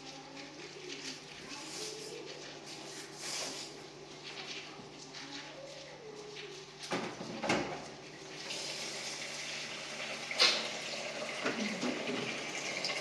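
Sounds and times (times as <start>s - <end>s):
tap water running into sink: 8.4s - 13.0s.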